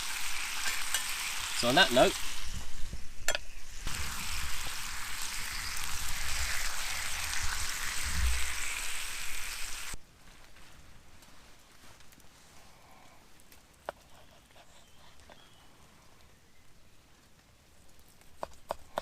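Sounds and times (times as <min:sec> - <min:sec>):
food sizzling in a skillet: 0:00.0 - 0:10.0.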